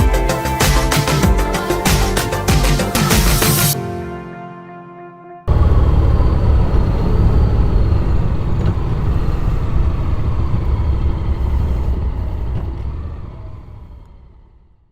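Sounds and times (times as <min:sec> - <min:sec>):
motorcycle engine rumble: 0:05.5 - 0:14.9.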